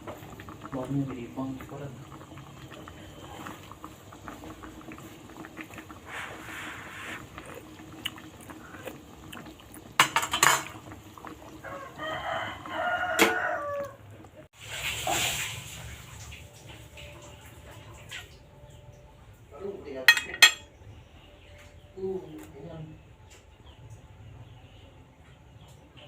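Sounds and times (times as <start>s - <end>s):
kitchen utensils and dishes clinking: 10.0s - 10.8s, 20.1s - 20.7s
rooster crowing: 11.6s - 14.1s.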